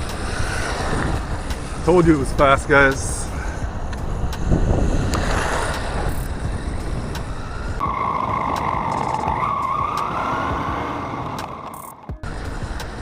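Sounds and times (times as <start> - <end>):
steady rushing noise: 0.0 - 13.0
high motor whine: 3.7 - 13.0.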